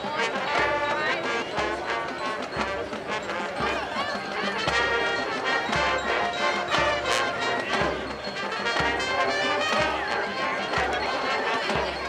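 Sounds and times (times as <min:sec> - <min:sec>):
marching band brass: 0:00.0 - 0:12.0.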